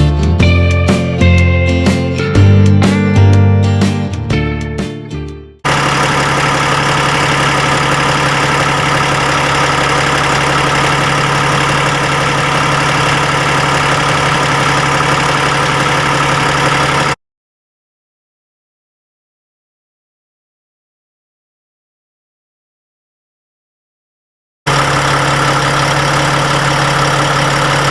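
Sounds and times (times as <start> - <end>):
diesel truck engine idling: 5.6 - 17.2, 24.7 - 27.9.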